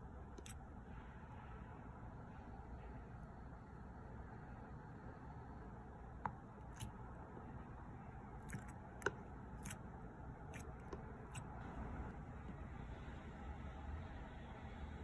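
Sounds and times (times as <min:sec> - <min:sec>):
slime squished by hand: 0:08.4 - 0:11.6.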